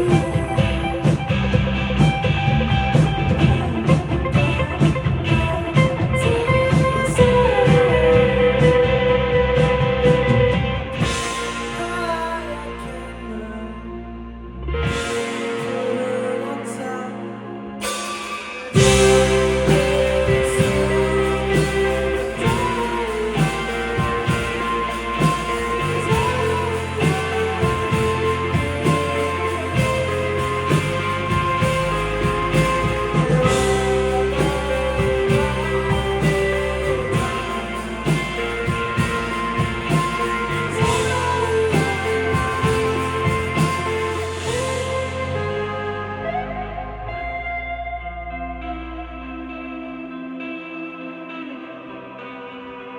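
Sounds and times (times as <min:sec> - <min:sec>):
steady drum beat: 0:00.0 - 0:11.9, 0:17.8 - 0:45.2
live rock band playing: 0:00.0 - 0:13.4, 0:14.8 - 0:16.8, 0:17.8 - 0:48.7.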